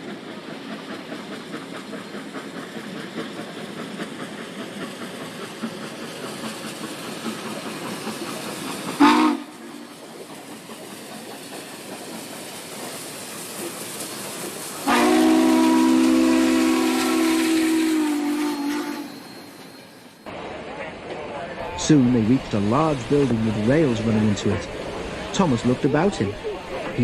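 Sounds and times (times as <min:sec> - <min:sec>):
steam locomotive clatter: 0:00.0 - 0:27.0
train whistle blast: 0:09.0 - 0:09.6, 0:14.8 - 0:19.7.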